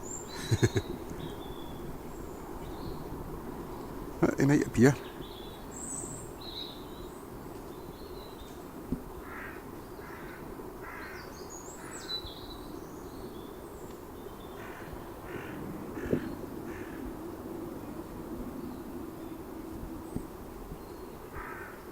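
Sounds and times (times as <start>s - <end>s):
bird calling: 0.0s - 7.1s, 9.2s - 21.9s
small birds chirping: 0.0s - 21.9s.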